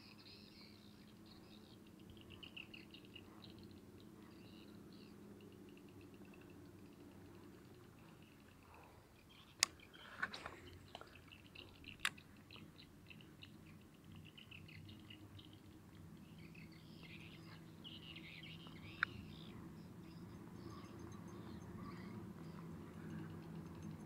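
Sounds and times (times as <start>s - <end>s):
faint birds chirping: 0.0s - 24.0s
low steady hum: 0.0s - 24.0s.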